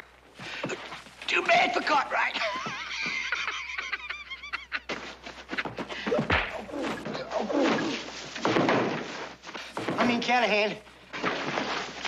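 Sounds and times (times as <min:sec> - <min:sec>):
punches and thuds: 0:06.0 - 0:10.3.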